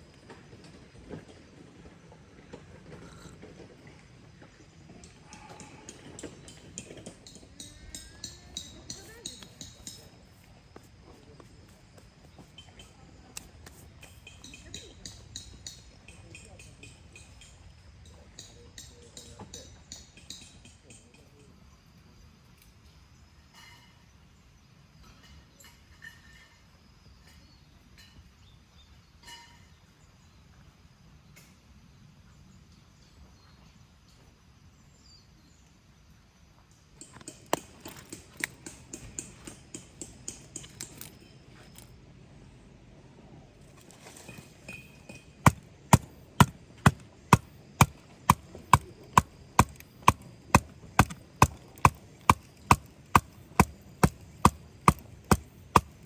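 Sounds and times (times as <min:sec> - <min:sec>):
sharp knocks on wood: 0:45.5 - 0:56.0.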